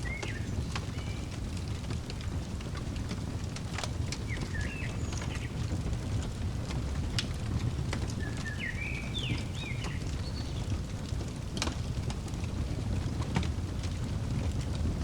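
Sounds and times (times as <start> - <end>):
fireplace crackling: 0.0 - 15.0
bird chirping: 4.3 - 5.6, 8.2 - 10.7.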